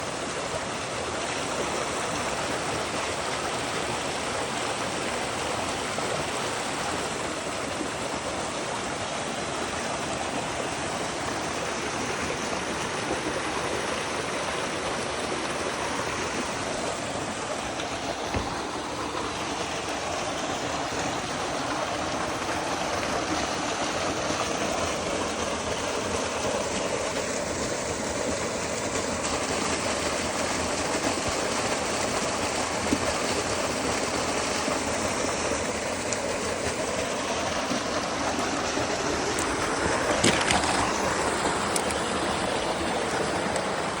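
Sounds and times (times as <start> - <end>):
rushing river water: 0.0 - 44.0.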